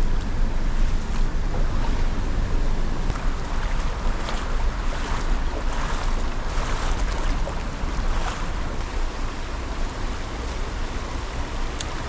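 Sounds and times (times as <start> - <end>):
wind rumble on microphone: 0.0 - 12.0
river water rushing over rapids: 0.6 - 12.0.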